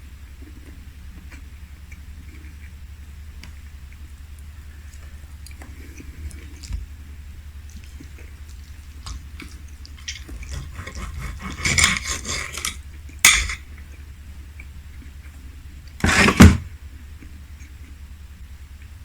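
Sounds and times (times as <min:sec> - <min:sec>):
cutlery clinking on a plate: 0:11.7 - 0:13.6.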